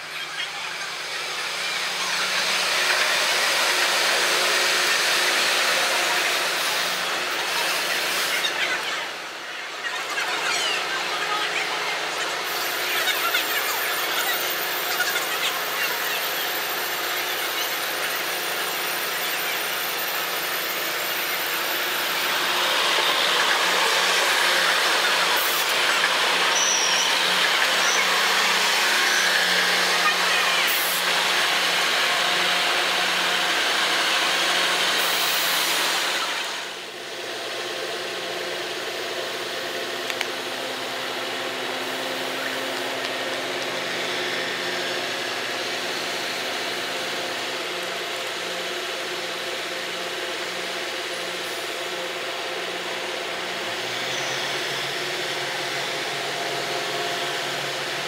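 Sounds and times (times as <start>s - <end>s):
steady engine hum: 36.4s - 58.0s.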